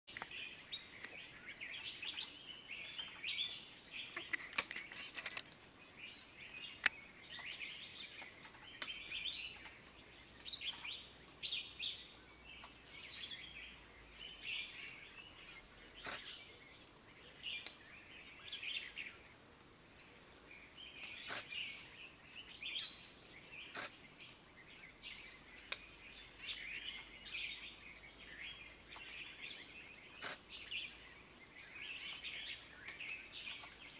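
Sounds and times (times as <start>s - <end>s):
birds chirping: 0.1s - 33.9s
sharp clicks: 4.3s - 5.6s.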